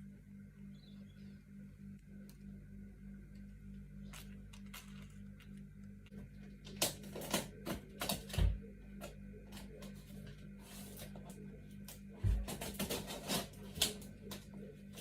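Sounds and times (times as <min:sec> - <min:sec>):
faint steady hum: 0:00.0 - 0:15.0
objects clicking and rustling: 0:04.1 - 0:05.6.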